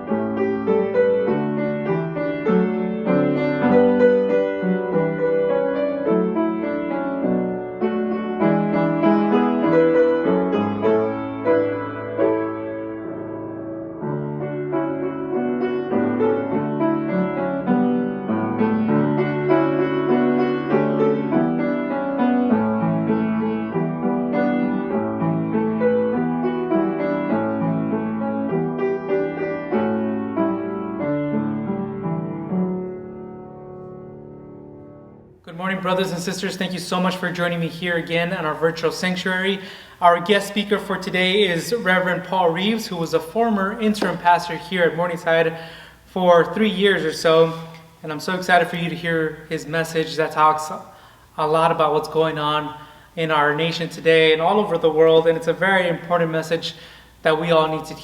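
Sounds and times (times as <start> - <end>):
slow gentle piano piece: 0.0 - 35.4.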